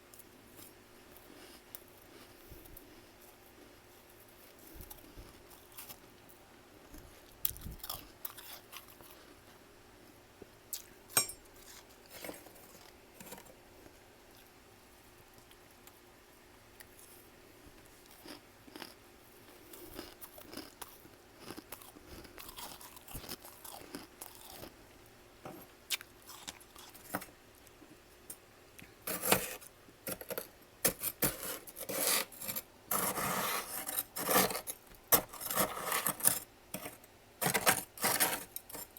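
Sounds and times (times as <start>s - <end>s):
frost being chewed: 0.2s - 9.6s, 16.8s - 25.2s, 25.9s - 28.0s.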